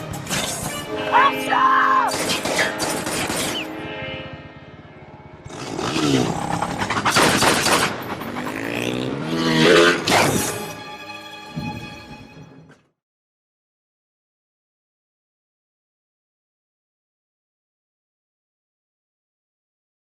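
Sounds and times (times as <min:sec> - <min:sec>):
dramatic music score: 0:00.0 - 0:12.9
motorcycle engines revving: 0:02.2 - 0:10.6.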